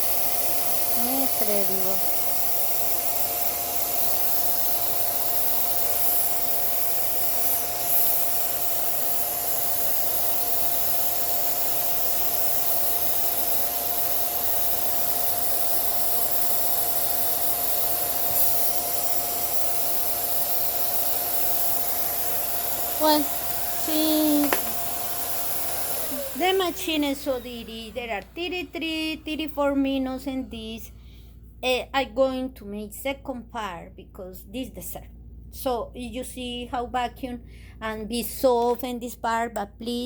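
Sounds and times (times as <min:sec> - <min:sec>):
small vacuum cleaner whining: 0:00.0 - 0:30.7.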